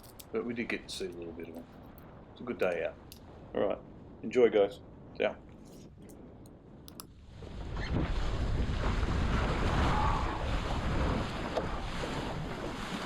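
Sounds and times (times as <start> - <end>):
wind buffeting microphone: 0.0 - 13.0
water rushing along hull: 7.2 - 13.0.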